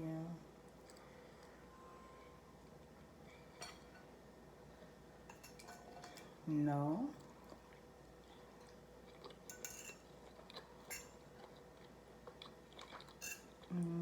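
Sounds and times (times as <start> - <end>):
soft chewing: 7.1 - 14.0.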